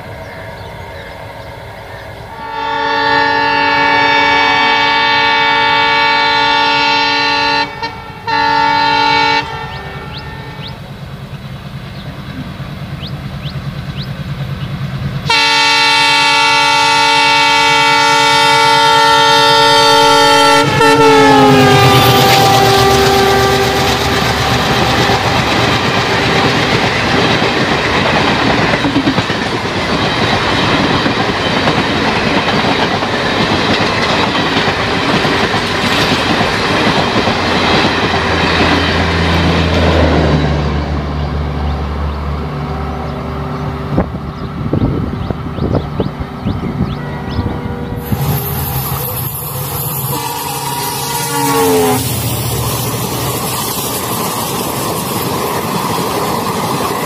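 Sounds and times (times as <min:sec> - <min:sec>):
locomotive multi-note horn: 0:00.5 - 0:11.0, 0:15.2 - 0:28.0, 0:35.0 - 0:54.4.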